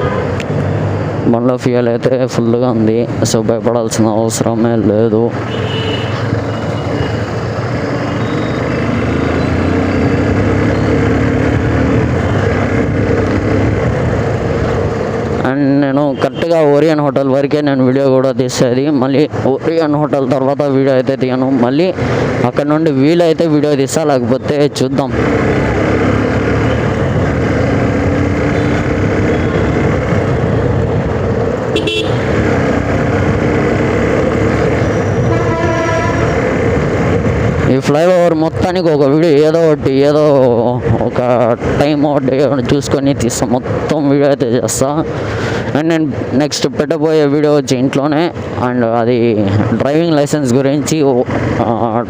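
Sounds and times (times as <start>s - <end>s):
road and wind noise: 0.0s - 52.0s
vehicle horn toot: 5.5s - 6.9s, 31.7s - 32.3s, 34.9s - 36.4s
motorcycle engine running: 5.7s - 15.4s, 25.1s - 37.7s.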